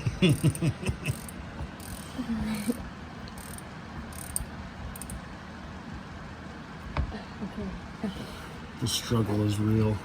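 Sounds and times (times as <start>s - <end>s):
wrench clicks and metallic taps: 3.3s - 5.2s.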